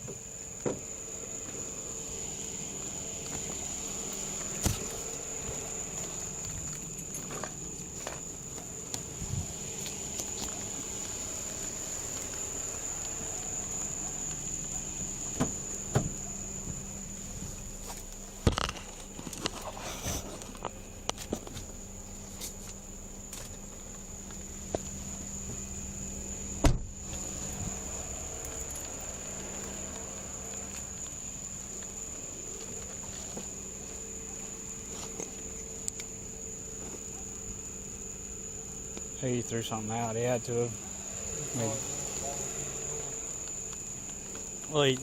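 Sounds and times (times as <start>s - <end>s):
crickets trilling: 0.0s - 45.0s
high-pitched insect drone: 0.0s - 45.0s
loud thump: 15.4s - 16.8s, 26.6s - 27.0s.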